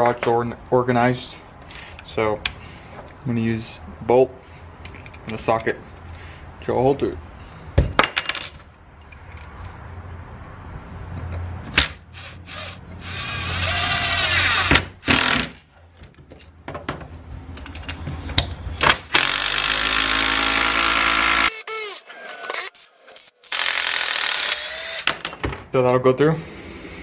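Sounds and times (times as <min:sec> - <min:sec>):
power drill boring into wood: 0:12.2 - 0:15.5, 0:19.1 - 0:25.1.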